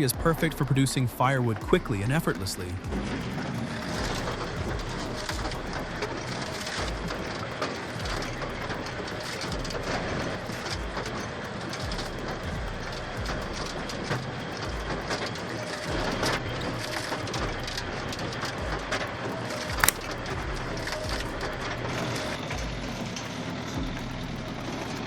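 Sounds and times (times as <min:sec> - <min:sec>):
machine noise: 0:00.0 - 0:25.0
sharp wood crack: 0:19.8 - 0:20.1.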